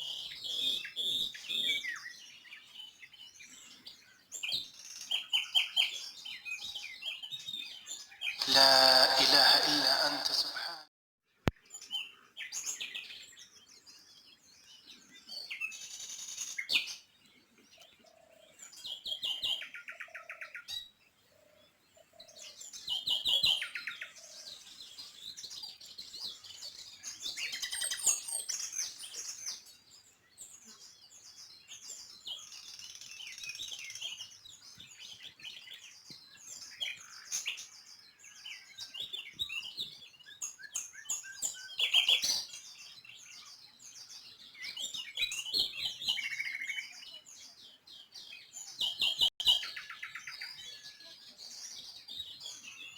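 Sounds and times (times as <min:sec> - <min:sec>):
small birds chirping: 0:00.0 - 0:10.0, 0:11.5 - 0:52.9.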